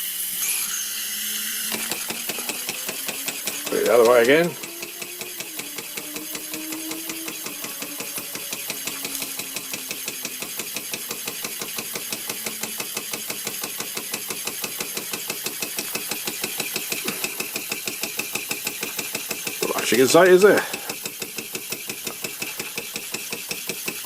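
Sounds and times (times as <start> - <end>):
toy steam engine chuffing: 0.0 - 24.0
faint whine dropping in pitch: 0.3 - 11.2.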